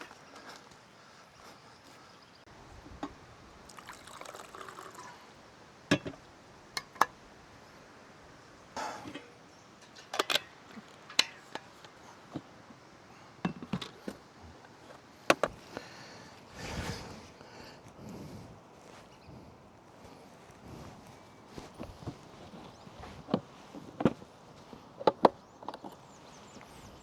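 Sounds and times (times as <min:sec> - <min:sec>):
water trickling and splashing: 0:03.6 - 0:05.4.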